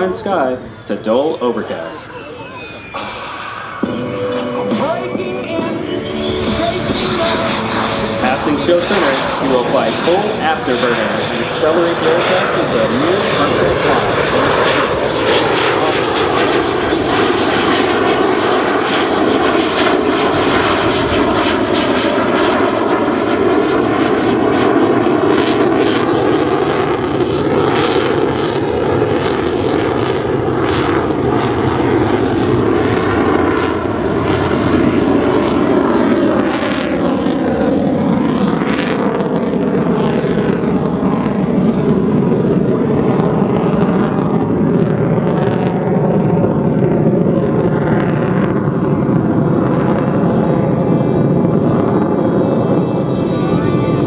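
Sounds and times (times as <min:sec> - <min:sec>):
fighter jet engine roaring: 0:00.0 - 0:54.0.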